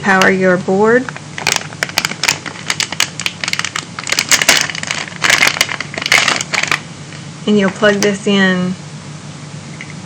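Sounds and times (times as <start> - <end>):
packaging crinkling: 1.1 - 6.9.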